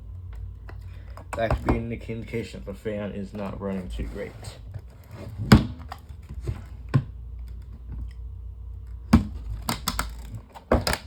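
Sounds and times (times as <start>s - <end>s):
low steady hum: 0.0s - 11.0s
plastic fan parts clicking: 9.4s - 11.0s.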